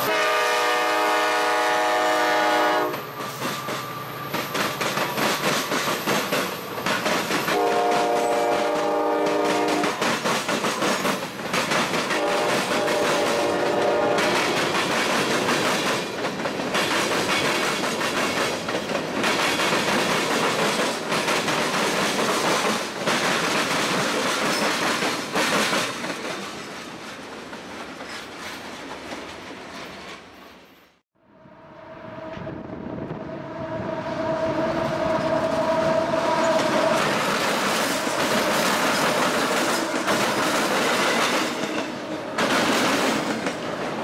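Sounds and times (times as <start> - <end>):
distant train horn: 0.0 - 4.2, 7.5 - 10.0, 12.1 - 14.6, 31.2 - 37.2
train wheels clattering over rails: 2.9 - 30.4, 36.4 - 44.0.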